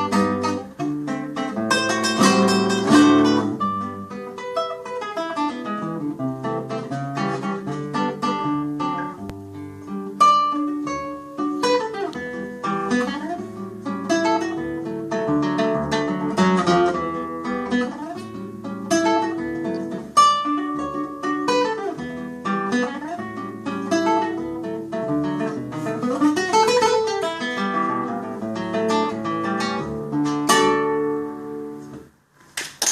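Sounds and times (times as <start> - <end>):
classical guitar fingerpicking: 0.0 - 32.2.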